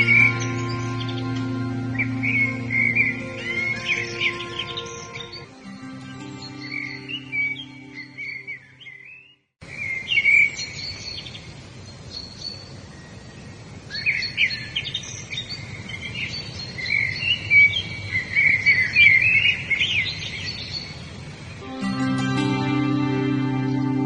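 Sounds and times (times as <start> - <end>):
songbirds singing and chirping: 0.0 - 24.0
outdoor hiss: 9.6 - 24.0.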